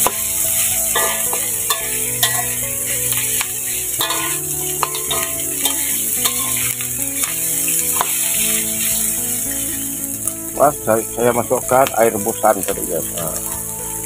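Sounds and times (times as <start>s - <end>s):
utensil scraping pan: 0.0s - 10.2s
background music with held notes: 0.0s - 14.0s
meat sizzling in a wok: 0.0s - 14.0s.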